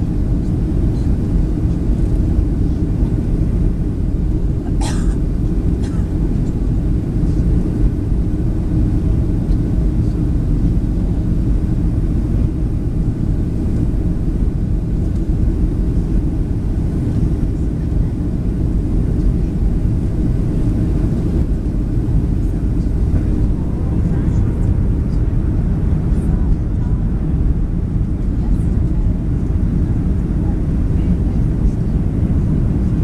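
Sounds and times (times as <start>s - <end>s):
airplane cabin drone: 0.0s - 33.0s.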